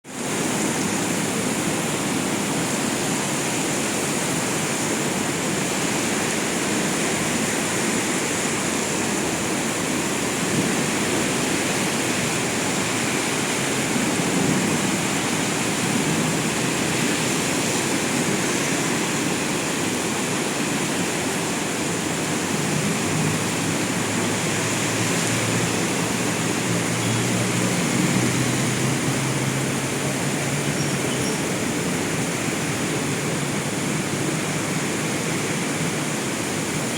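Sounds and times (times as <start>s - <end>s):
heavy rain pouring: 0.0s - 36.9s
traffic engine drone: 0.2s - 36.9s.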